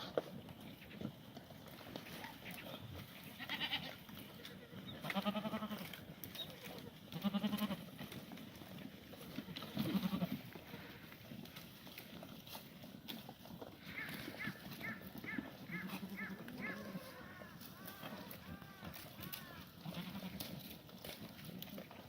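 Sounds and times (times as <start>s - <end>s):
goats bleating: 3.2s - 6.0s, 6.6s - 8.0s, 9.4s - 11.2s, 13.8s - 20.8s.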